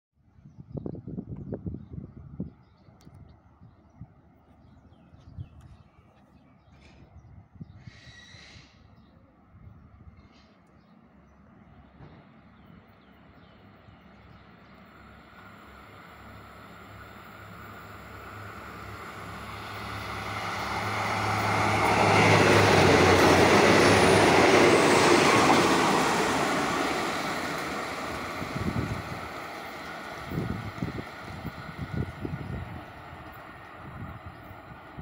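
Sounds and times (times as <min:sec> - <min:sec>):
diesel train passing: 0:09.2 - 0:35.0.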